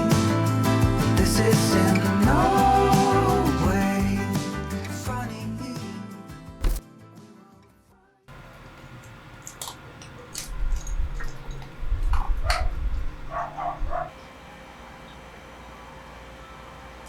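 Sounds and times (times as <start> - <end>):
small dog barking: 12.2 - 14.2.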